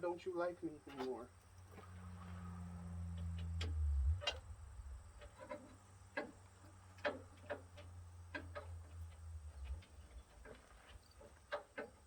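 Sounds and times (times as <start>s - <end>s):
low hum: 1.8s - 5.5s, 7.4s - 10.5s.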